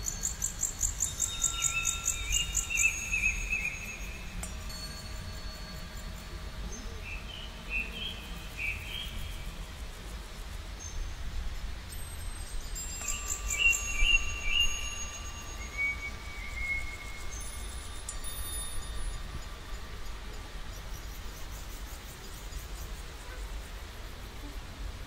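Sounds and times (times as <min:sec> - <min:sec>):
thin high whistles: 0:00.0 - 0:09.2, 0:12.2 - 0:21.2
birds chirping: 0:00.1 - 0:04.9.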